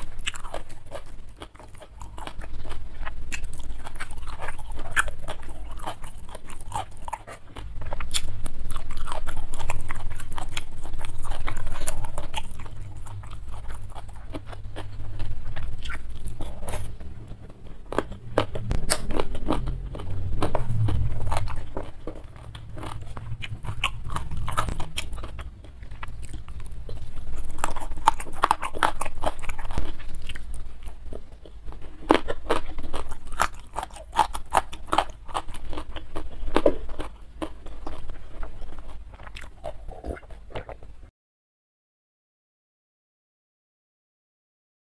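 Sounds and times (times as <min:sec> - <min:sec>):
lip-smacking: 0:00.0 - 0:30.7
wet chewing: 0:00.0 - 0:41.1.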